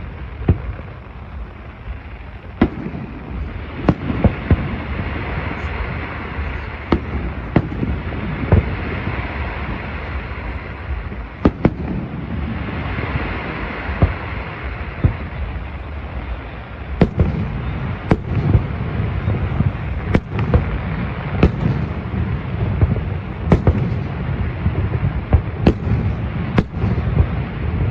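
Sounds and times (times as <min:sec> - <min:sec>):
firework bangs: 0:00.0 - 0:27.9
rumble and crackle: 0:00.0 - 0:27.9.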